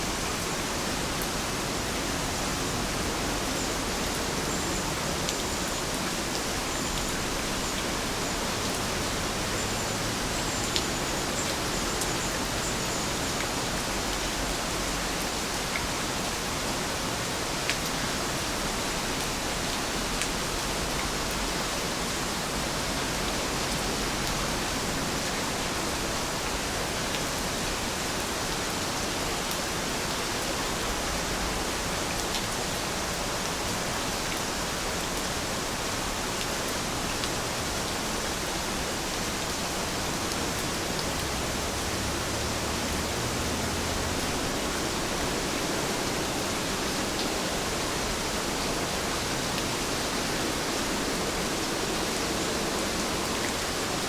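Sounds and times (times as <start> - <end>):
heavy rain hissing: 21.4 - 54.0.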